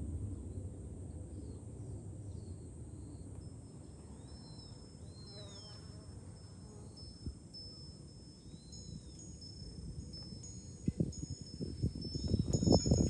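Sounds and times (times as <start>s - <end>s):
cicadas droning: 2.4s - 13.0s
glass wind bell ringing: 6.4s - 13.0s
wind rumbling on microphone: 7.0s - 13.0s.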